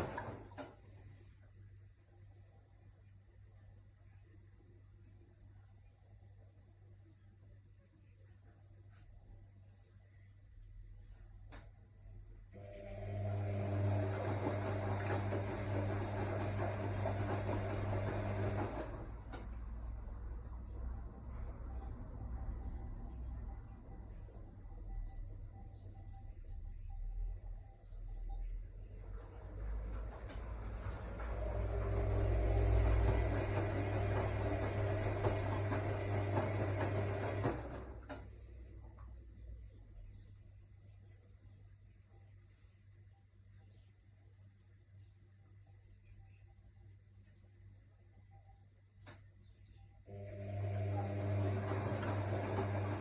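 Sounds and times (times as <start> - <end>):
washing machine humming: 0.0 - 3.2, 11.1 - 39.0, 50.0 - 53.0.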